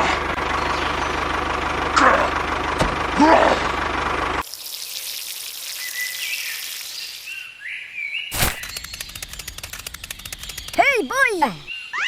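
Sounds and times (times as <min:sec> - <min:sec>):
insect hiss: 0:04.5 - 0:11.8
bird-like chirps: 0:05.7 - 0:12.0
rapid even clicking: 0:08.3 - 0:11.5.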